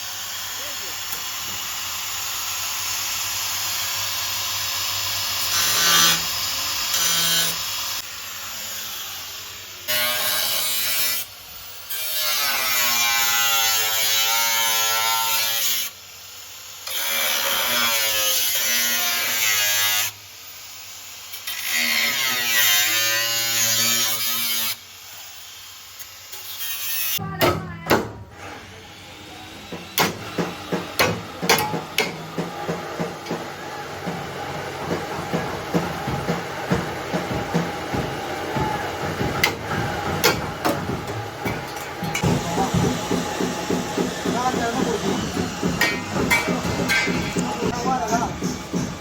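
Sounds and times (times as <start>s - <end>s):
electric power tool running: 0.0s - 10.6s.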